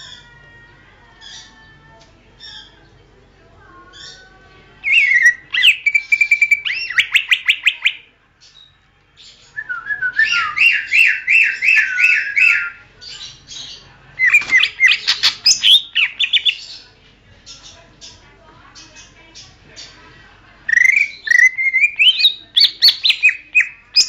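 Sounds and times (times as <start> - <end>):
bird singing whistled phrases: 4.8 - 8.1, 9.5 - 12.8, 20.7 - 24.0.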